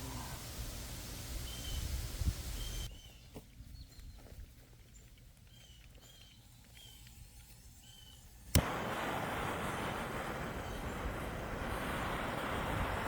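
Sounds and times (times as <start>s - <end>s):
faint birds chirping: 1.3s - 13.0s
campfire crackling and hissing: 6.0s - 13.0s
sharp snap of fire: 8.5s - 13.0s.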